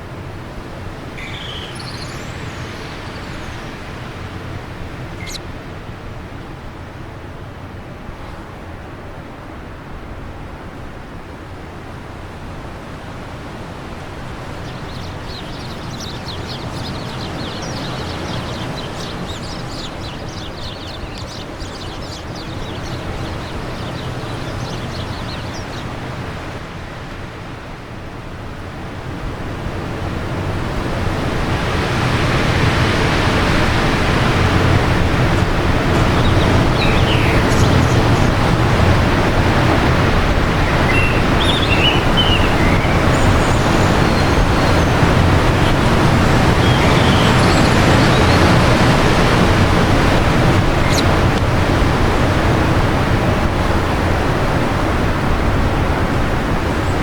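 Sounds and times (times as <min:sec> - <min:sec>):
wind blowing: 0:00.0 - 0:06.3, 0:12.2 - 0:27.4, 0:29.4 - 0:57.0
birds twittering: 0:01.0 - 0:05.4, 0:13.9 - 0:26.6, 0:32.3 - 0:52.5.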